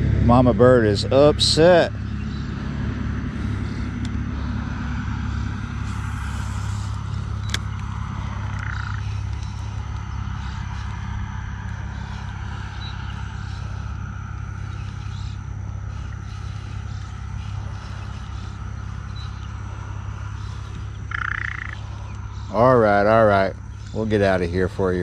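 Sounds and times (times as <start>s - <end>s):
steady low hum: 0.0s - 25.0s
bird alarm calls: 6.7s - 11.0s, 11.7s - 24.1s.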